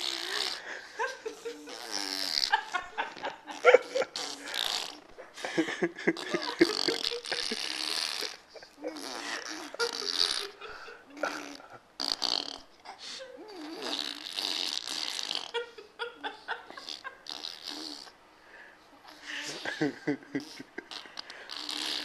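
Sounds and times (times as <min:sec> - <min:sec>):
baby blowing raspberries: 0:00.0 - 0:00.8, 0:01.6 - 0:05.2, 0:06.1 - 0:15.6, 0:16.8 - 0:18.2, 0:20.5 - 0:22.0
baby laughing: 0:00.0 - 0:11.8.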